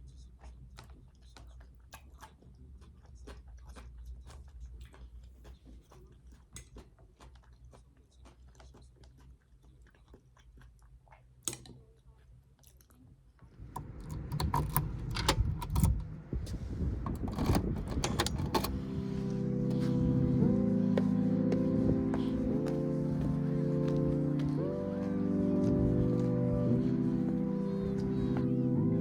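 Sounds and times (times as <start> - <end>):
clicks and handling noises: 13.8 - 16.1, 17.0 - 19.8
busy clattering: 17.1 - 18.8
background music: 17.3 - 29.0.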